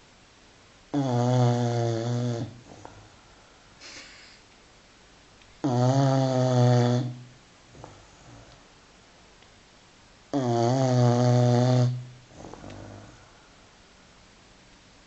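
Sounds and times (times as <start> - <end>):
puppy snoring: 0.9 - 3.0, 5.6 - 8.6, 10.3 - 13.4
faint breath: 2.6 - 4.5, 12.3 - 14.2.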